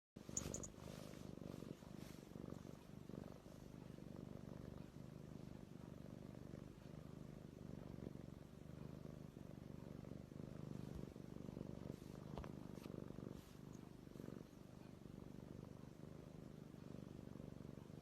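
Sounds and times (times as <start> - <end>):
kitten purring: 0.2 - 18.0.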